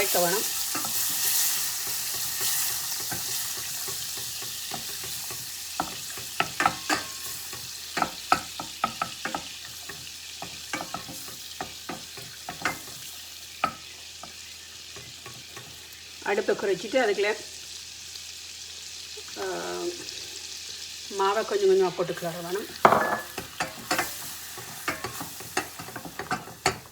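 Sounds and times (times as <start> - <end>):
spoon scraping a pan: 0.0 - 15.9, 22.2 - 26.9
butter sizzling in a pan: 0.0 - 26.9.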